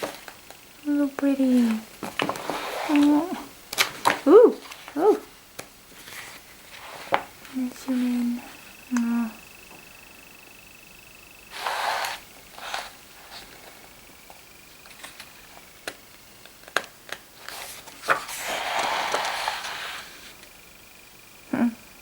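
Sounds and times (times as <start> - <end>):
paper pages rustling: 1.5 - 8.6, 11.5 - 13.8, 14.8 - 20.4.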